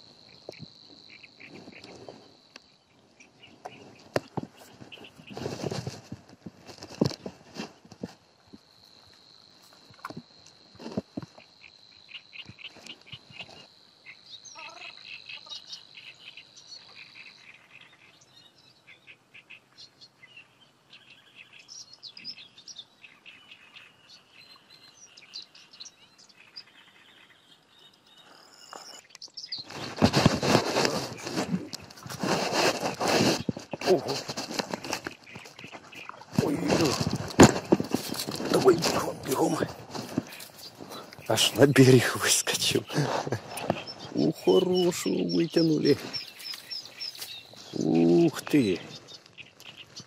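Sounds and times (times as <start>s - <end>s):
small birds chirping: 0.0s - 50.0s
steady high bird trill: 12.1s - 50.0s
loud rustling: 29.6s - 44.2s.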